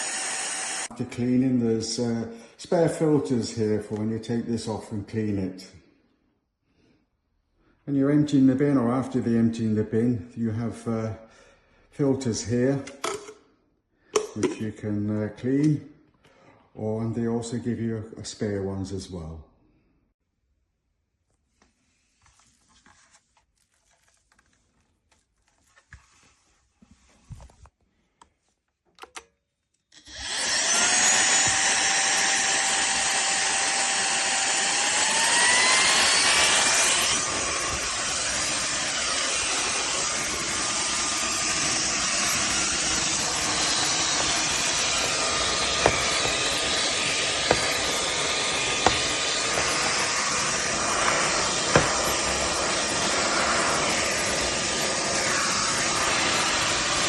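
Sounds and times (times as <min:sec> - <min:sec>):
vacuum cleaner motor whine: 0:00.0 - 0:00.9, 0:30.0 - 0:57.0.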